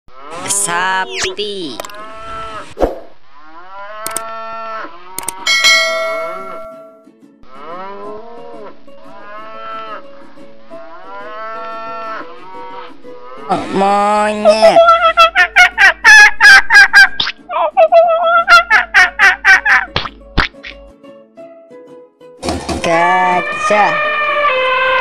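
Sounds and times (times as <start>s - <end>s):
cattle mooing: 0.1s - 0.7s, 2.0s - 2.7s, 3.4s - 5.2s, 7.5s - 10.0s, 11.0s - 13.8s
sharp clicks: 1.8s - 2.0s, 4.0s - 4.3s, 5.2s - 5.4s.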